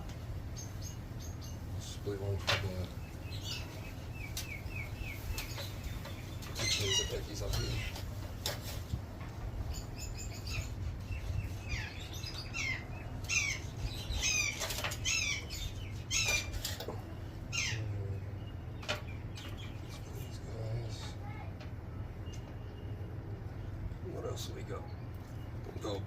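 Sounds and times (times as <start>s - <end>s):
parrots chirping: 0.0s - 8.8s, 9.4s - 21.3s.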